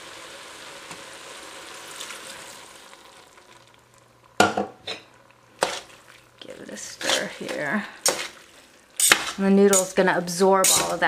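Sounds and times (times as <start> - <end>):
noodles sizzling in a pot: 0.0 - 11.0
metal tongs clacking on pot: 9.0 - 10.0, 10.6 - 11.0.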